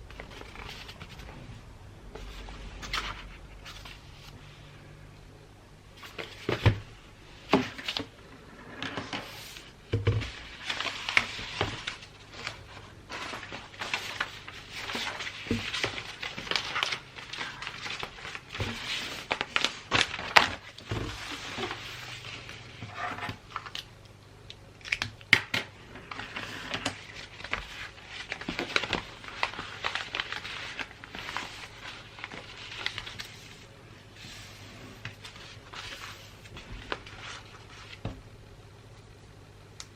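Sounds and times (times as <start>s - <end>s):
wrapping paper crinkling: 10.3s - 23.9s, 25.9s - 38.0s.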